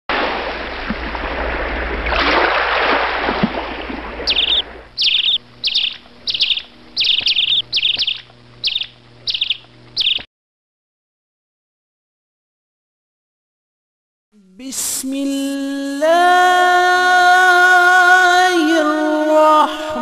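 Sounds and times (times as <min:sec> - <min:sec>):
bird chirping: 0:04.3 - 0:10.3.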